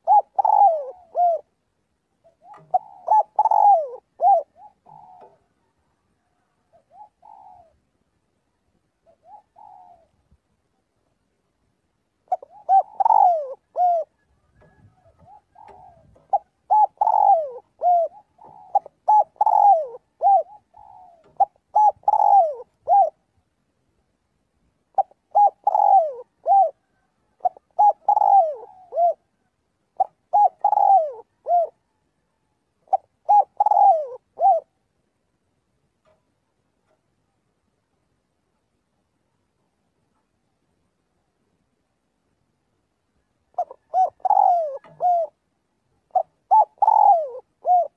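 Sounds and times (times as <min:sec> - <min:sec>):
dove cooing: 0:00.0 - 0:07.9, 0:09.0 - 0:10.4, 0:12.2 - 0:23.4, 0:24.9 - 0:34.8, 0:43.5 - 0:45.4, 0:46.0 - 0:47.9.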